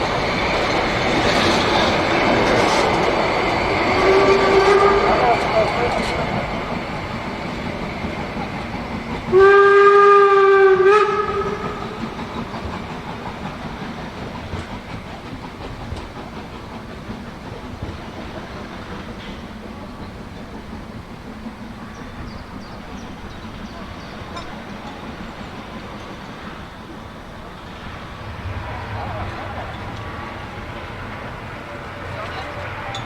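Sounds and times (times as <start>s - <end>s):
train running: 0.0s - 33.0s
train whistle blast: 3.9s - 6.0s, 9.3s - 12.0s.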